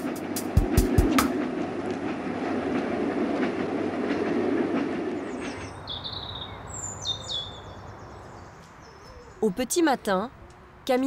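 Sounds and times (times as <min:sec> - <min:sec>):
train rumbling on rails: 0:00.0 - 0:08.0
birds chirping: 0:05.1 - 0:11.0.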